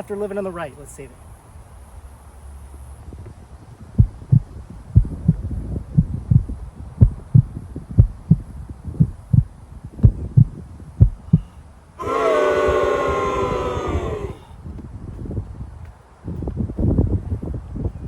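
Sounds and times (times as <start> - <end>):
heartbeat thumps: 4.0 - 11.5.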